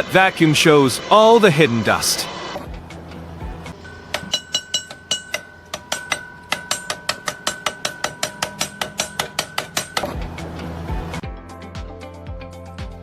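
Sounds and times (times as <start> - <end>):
steady ringing tone: 3.7 - 11.2
rapid metallic knocking: 3.9 - 11.2.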